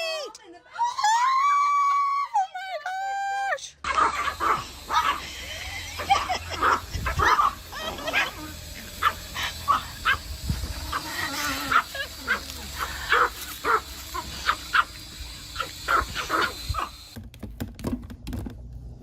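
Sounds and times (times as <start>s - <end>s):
dog barking: 3.9s - 5.3s, 6.6s - 8.3s, 9.0s - 10.3s, 10.9s - 15.0s, 15.6s - 17.0s.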